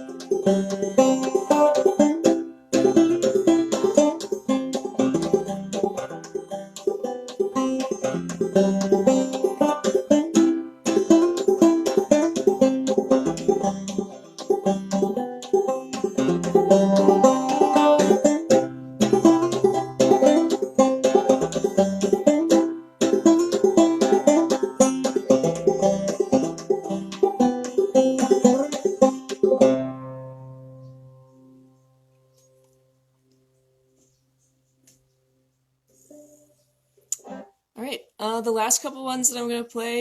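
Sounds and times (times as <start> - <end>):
banjo plucked tune: 0.0 - 33.0, 35.9 - 40.0.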